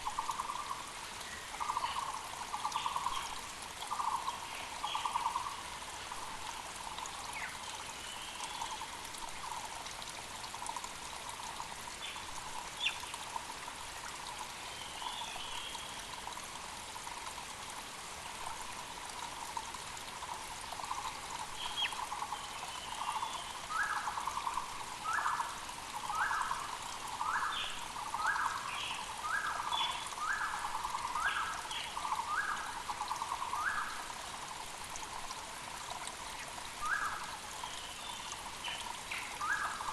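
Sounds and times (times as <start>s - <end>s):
mountain creek flowing: 0.0s - 39.9s.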